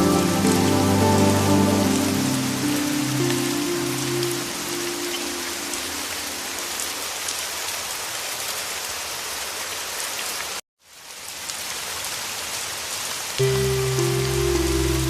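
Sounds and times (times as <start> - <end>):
soft low music tones: 0.0 - 6.1, 13.4 - 15.0
heavy rain falling: 0.0 - 15.0.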